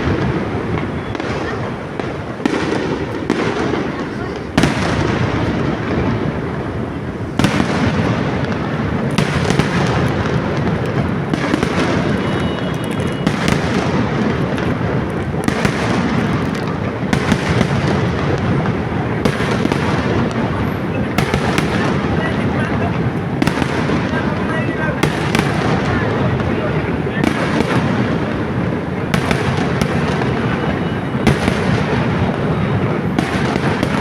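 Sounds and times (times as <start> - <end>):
fireworks rumbling and crackling: 0.0 - 34.0
sharp firework bangs: 0.0 - 34.0.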